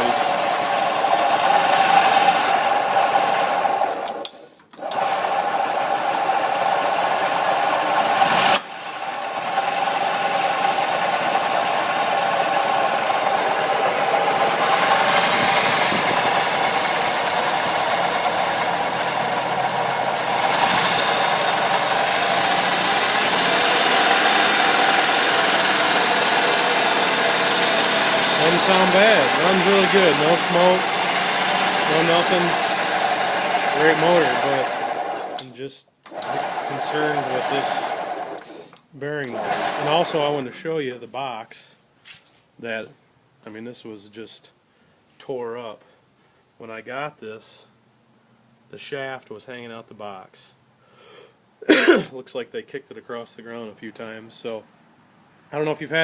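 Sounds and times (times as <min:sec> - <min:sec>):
golf cart engine grinding: 0:00.0 - 0:40.6.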